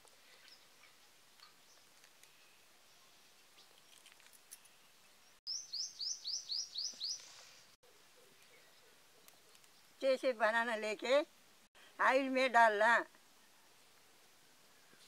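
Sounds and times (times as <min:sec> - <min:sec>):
faint outdoor ambience: 0:00.0 - 0:15.0
bird singing high rising notes: 0:05.5 - 0:07.2.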